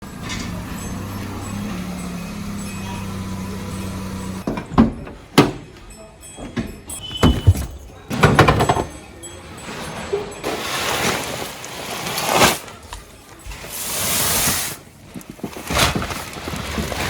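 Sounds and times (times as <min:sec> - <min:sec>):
tractor diesel engine running: 0:00.0 - 0:04.5
loud thumps and knocks: 0:07.1 - 0:08.9.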